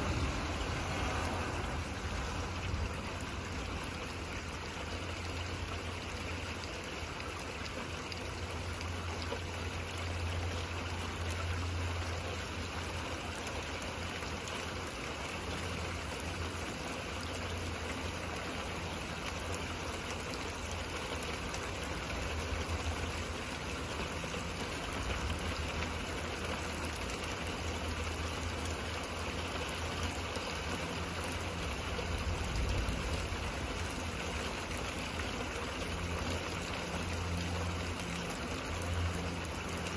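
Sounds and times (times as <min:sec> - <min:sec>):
rain hissing: 0:00.0 - 0:04.7, 0:29.6 - 0:39.9.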